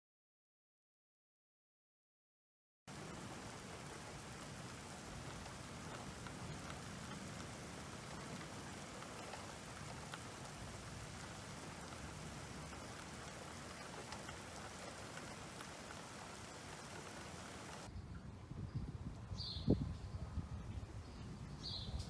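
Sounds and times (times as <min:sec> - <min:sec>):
steady rain falling: 0:02.9 - 0:17.9.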